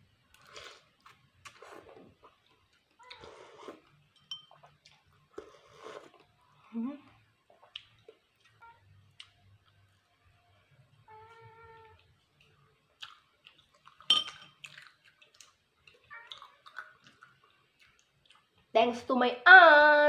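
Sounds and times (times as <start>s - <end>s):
chewing and mouth noises: 7.5s - 9.8s, 12.0s - 18.7s
cat meowing: 11.1s - 12.1s, 16.1s - 16.8s.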